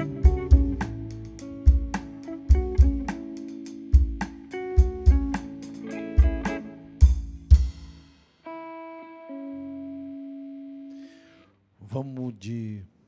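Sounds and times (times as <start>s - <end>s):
low drum thumps: 0.0s - 3.2s, 7.0s - 8.0s
rock band playing: 0.0s - 11.1s.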